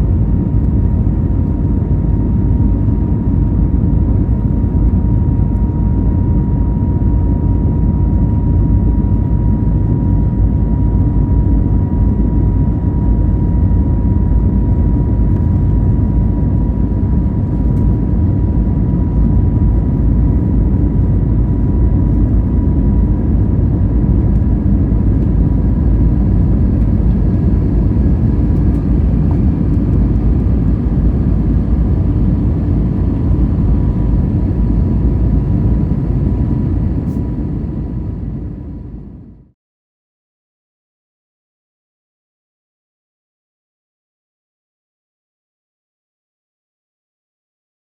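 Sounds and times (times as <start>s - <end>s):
aircraft engine rumble: 0.0s - 39.6s
engine fan whine: 0.0s - 39.6s.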